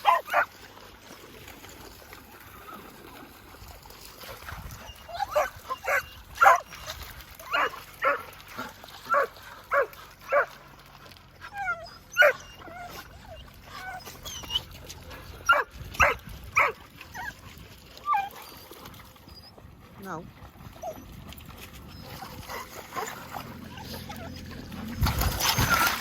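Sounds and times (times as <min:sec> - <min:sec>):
dogs barking and yelping: 0:00.0 - 0:00.5, 0:04.8 - 0:10.6, 0:11.4 - 0:19.6, 0:20.8 - 0:21.1, 0:21.7 - 0:26.0
dog whining: 0:04.9 - 0:06.8, 0:11.5 - 0:14.8, 0:18.0 - 0:19.6, 0:21.9 - 0:26.0.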